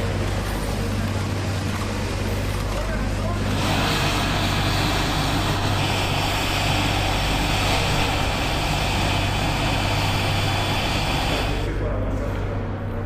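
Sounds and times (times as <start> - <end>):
helicopter engine and rotor: 3.4 - 11.6.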